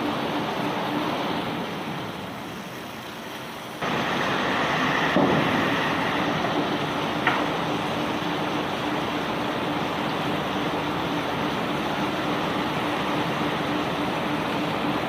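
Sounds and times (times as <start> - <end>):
rock-unloading machinery rumbling: 3.8 - 15.0.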